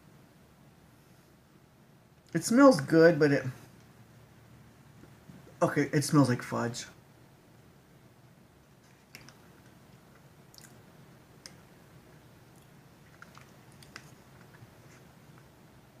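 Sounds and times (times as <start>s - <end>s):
low room hum: 0.0s - 16.0s
soft wet chewing clicks: 8.8s - 15.5s.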